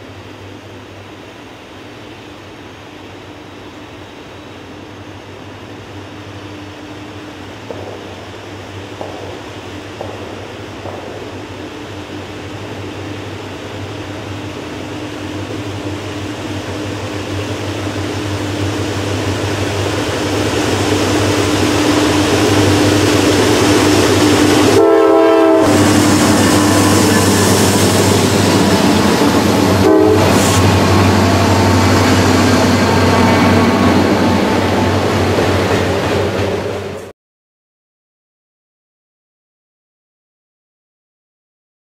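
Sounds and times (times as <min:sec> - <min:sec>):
diesel locomotive engines droning: 0:00.0 - 0:37.1
train horn blast: 0:24.3 - 0:27.7, 0:29.6 - 0:31.7.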